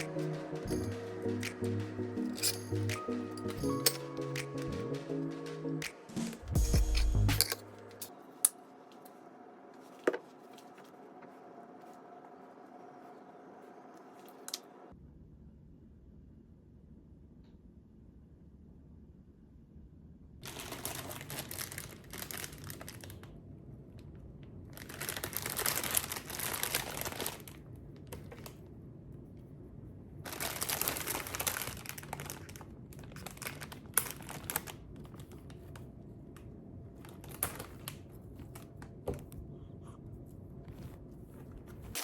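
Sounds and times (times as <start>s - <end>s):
wrapping being crinkled: 9.8s - 12.2s, 20.4s - 23.4s, 24.0s - 28.7s, 30.2s - 39.0s, 40.6s - 42.0s.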